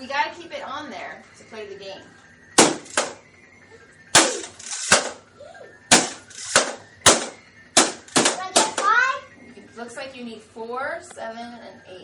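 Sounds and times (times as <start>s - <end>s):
toy hammer hitting game: 2.6s - 3.2s, 4.2s - 5.2s, 5.9s - 8.9s.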